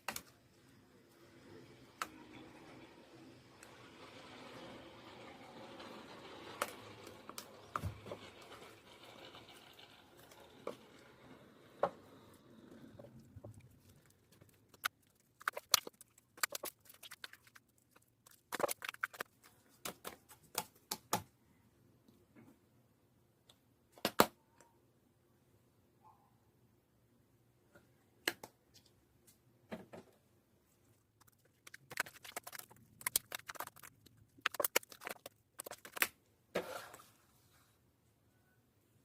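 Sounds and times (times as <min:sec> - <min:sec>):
slime rustling sticky: 0:31.2 - 0:36.1.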